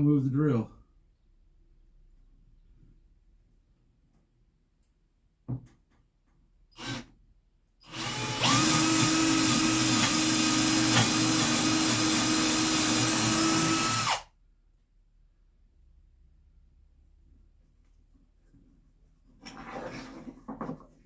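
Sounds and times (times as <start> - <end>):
electric drill boring into wood: 6.8 - 7.1, 7.9 - 14.3.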